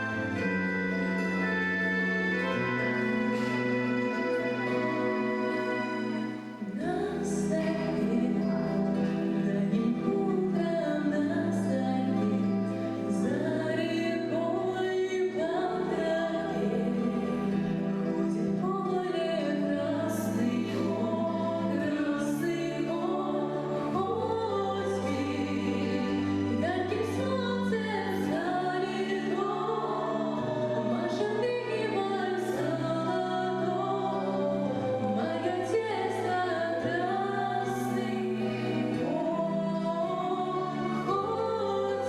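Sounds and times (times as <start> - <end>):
instrumental accompaniment: 0.0 - 42.0
children singing: 13.2 - 42.0.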